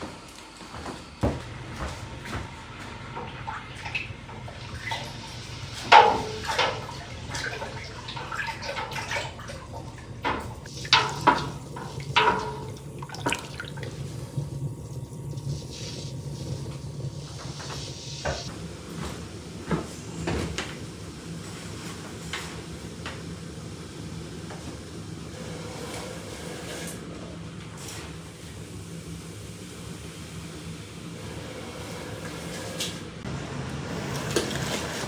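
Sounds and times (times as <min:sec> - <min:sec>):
water splashing: 0:10.6 - 0:18.5.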